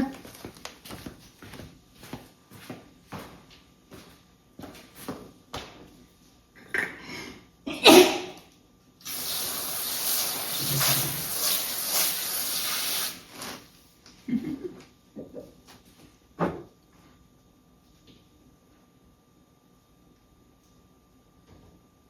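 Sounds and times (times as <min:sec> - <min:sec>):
spraying hiss: 0:09.0 - 0:13.3.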